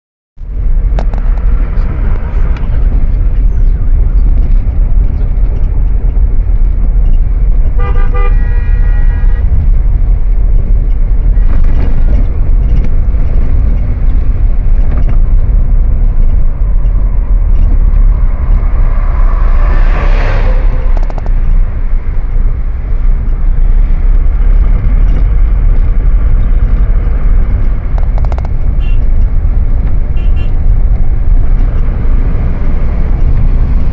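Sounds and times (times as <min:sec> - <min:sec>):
heavy road vehicle rumble: 0:00.4 - 0:33.9
rushing vehicle pass: 0:00.4 - 0:33.9
vehicle horn: 0:07.7 - 0:09.6, 0:11.3 - 0:12.3, 0:28.8 - 0:29.1, 0:30.2 - 0:30.6.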